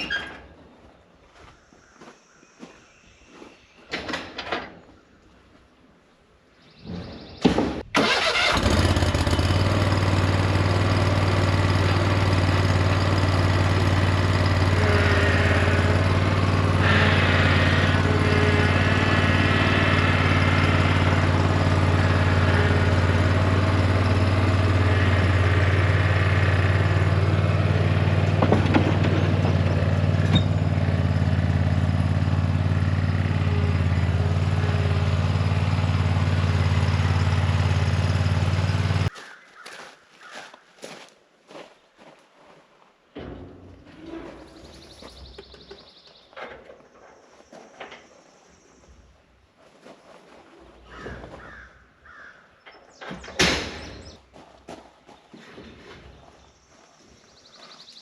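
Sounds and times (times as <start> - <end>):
vehicle engine droning: 8.0 - 39.1.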